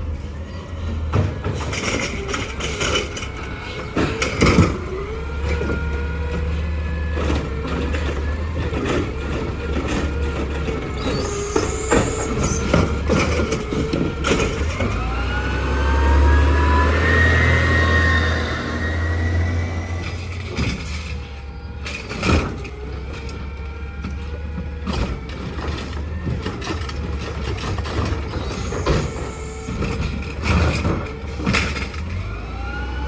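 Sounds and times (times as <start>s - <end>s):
garbage truck diesel rumble: 0.0s - 33.0s
rising whine: 14.8s - 21.8s.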